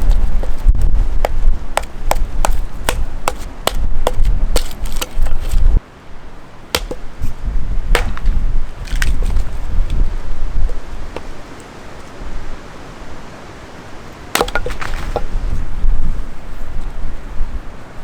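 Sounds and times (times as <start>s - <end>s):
firewood being split: 0.0s - 5.8s, 6.7s - 11.6s, 14.3s - 15.4s.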